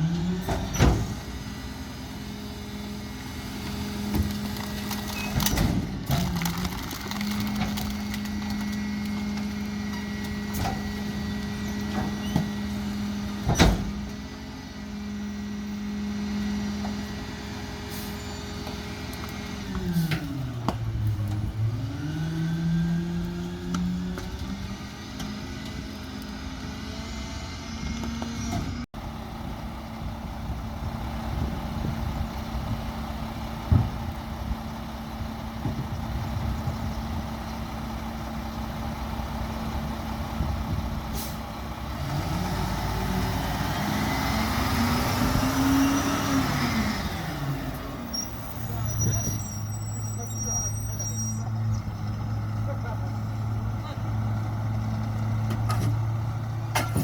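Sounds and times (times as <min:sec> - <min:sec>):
garbage truck diesel engine running: 0:00.0 - 0:57.0.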